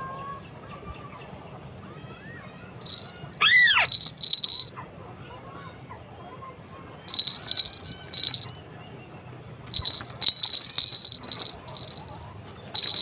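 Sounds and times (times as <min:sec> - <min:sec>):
high ringing bird calls: 0:02.8 - 0:04.7, 0:07.1 - 0:08.6, 0:09.7 - 0:13.0.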